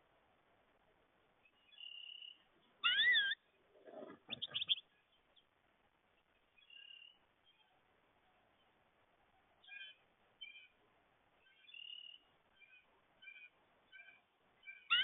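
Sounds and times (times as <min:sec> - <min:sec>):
goldfinch calling: 0:02.8 - 0:03.4, 0:04.3 - 0:04.8, 0:13.2 - 0:15.0.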